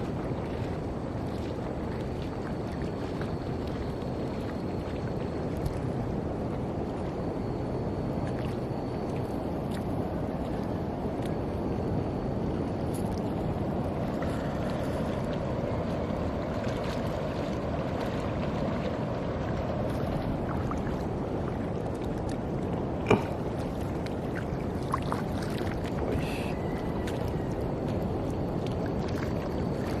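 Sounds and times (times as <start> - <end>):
water rushing: 0.0 - 30.0.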